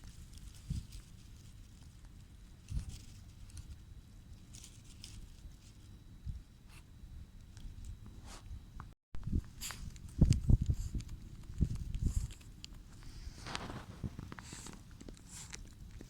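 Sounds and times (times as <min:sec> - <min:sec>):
dog paws digging in soil: 0:00.0 - 0:05.9, 0:09.3 - 0:16.0.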